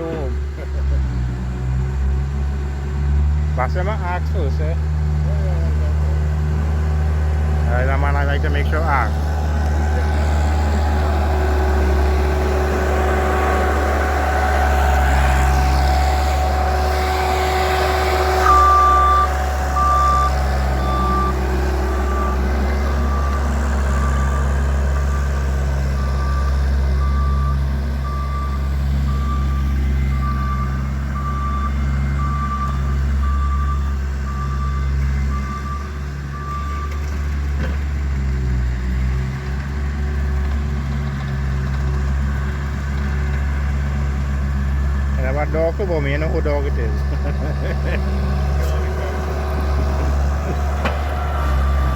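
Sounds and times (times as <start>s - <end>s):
loader engine running: 0.0s - 51.9s
reversing alarm beeping: 10.0s - 37.0s, 48.4s - 51.9s.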